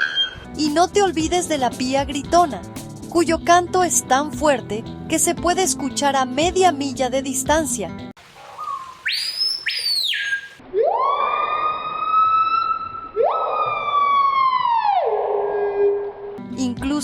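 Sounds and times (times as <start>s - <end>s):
siren-like wailing: 10.6s - 16.4s.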